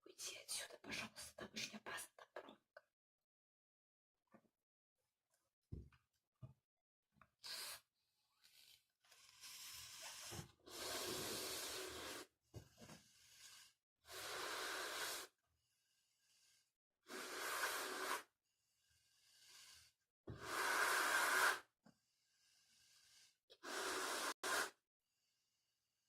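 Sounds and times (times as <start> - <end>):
puffs of breath into balloon: 7.4 - 12.3, 13.0 - 15.4, 16.1 - 24.8
quiet in-breaths: 21.9 - 24.4.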